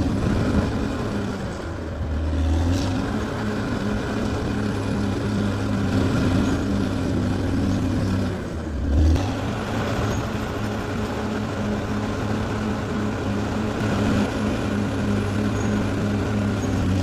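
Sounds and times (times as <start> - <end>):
model bulldozer motor running: 0.0 - 17.0.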